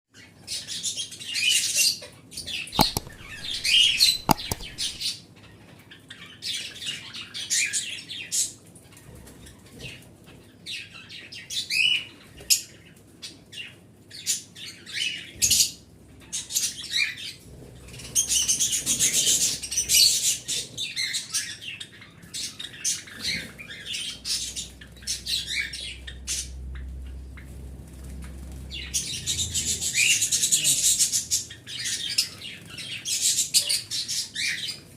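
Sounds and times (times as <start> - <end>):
cage birds chirping: 2.8 - 5.1, 17.9 - 34.9.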